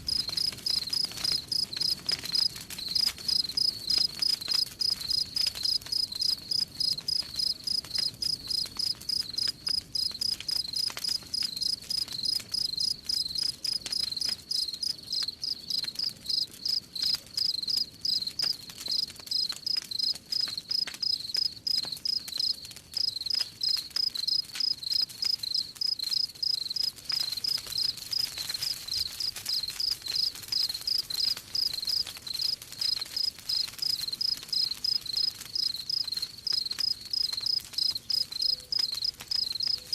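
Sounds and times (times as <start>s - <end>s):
wood fire crackling: 0.0s - 39.9s
crickets chirping: 0.1s - 1.8s, 3.3s - 10.1s, 11.6s - 16.8s, 18.9s - 20.1s, 20.7s - 23.3s, 24.3s - 27.9s, 33.2s - 39.8s.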